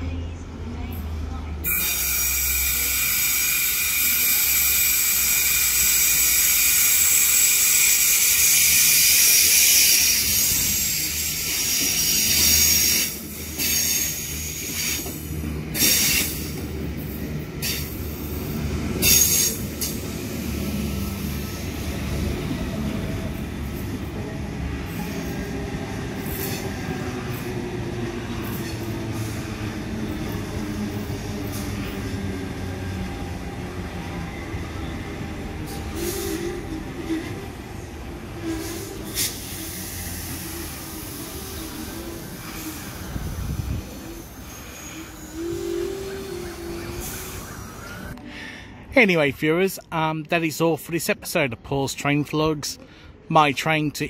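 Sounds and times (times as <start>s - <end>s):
train rumble: 0.0s - 51.2s
train cars clanking and knocking: 1.0s - 34.1s
train wheel squeal: 1.6s - 22.2s, 24.8s - 33.4s, 34.0s - 48.2s
train motor whine: 1.7s - 23.9s, 38.2s - 48.3s.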